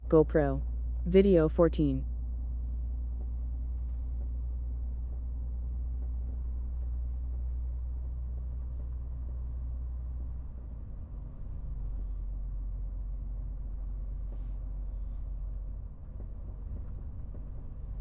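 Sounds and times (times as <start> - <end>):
diesel truck engine droning: 0.0 - 18.0.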